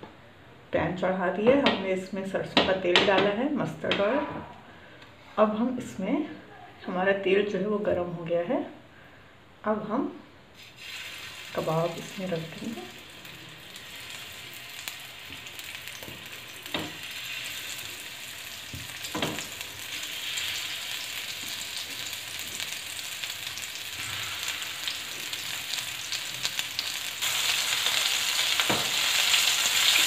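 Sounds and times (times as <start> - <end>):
kebabs sizzling in oil: 10.6 - 30.0.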